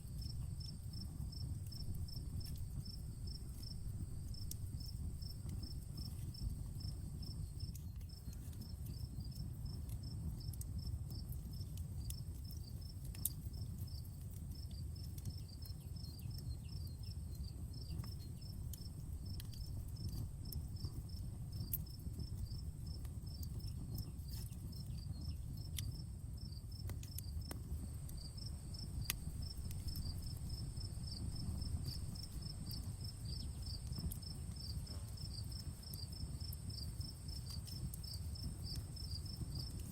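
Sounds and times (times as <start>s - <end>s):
campfire crackling: 0.0s - 39.9s
crickets chirping: 24.9s - 39.9s.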